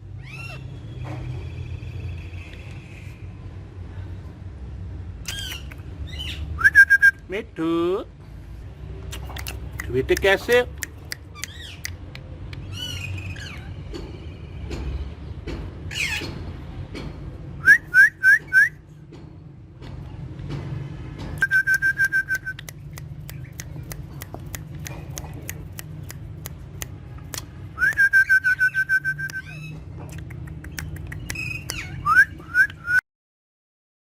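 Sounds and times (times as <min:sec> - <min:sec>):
trilled whistles: 0:06.6 - 0:07.2, 0:17.6 - 0:18.8, 0:21.4 - 0:22.8, 0:27.8 - 0:29.6, 0:31.3 - 0:33.0
sharp clicks: 0:09.1 - 0:12.6, 0:21.4 - 0:28.1, 0:30.1 - 0:31.8
parrots whistling: 0:21.4 - 0:22.7, 0:27.8 - 0:29.8, 0:30.8 - 0:33.0.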